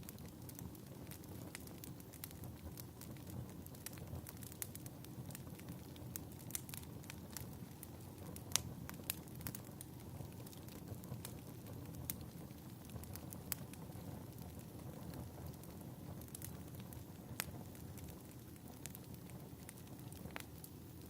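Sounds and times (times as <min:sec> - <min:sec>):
sharp pops of fire: 0:00.0 - 0:21.0
wood fire crackling: 0:00.0 - 0:21.0.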